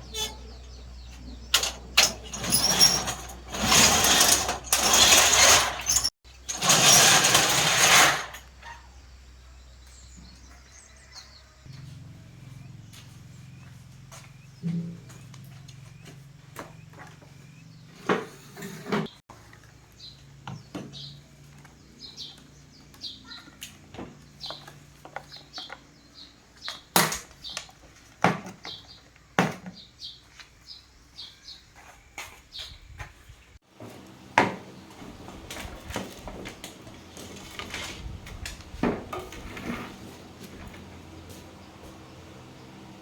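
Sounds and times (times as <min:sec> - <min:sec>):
small birds chirping: 0:00.0 - 0:01.6, 0:19.6 - 0:33.6.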